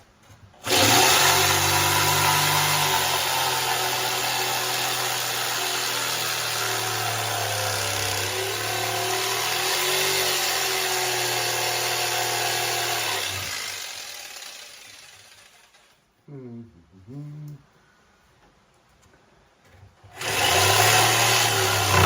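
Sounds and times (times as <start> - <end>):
electric jigsaw cutting wood: 0.6 - 16.0, 20.1 - 22.0.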